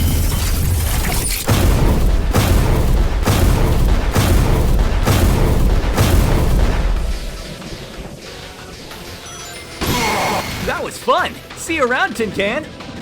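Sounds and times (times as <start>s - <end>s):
loud booms: 1.4s - 8.2s
low rumble: 1.5s - 8.2s
music: 3.8s - 13.0s.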